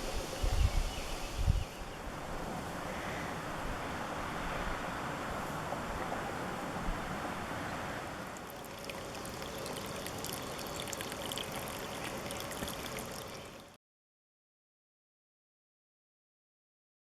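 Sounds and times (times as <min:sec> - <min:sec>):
stream trickling: 0:07.7 - 0:13.8
fine water splashes: 0:08.2 - 0:13.8.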